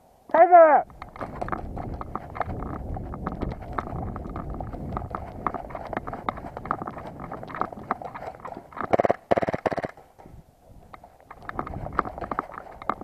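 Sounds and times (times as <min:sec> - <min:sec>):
fast footsteps on ground: 0:00.8 - 0:13.0
loud rapid rattling bursts: 0:00.9 - 0:10.2.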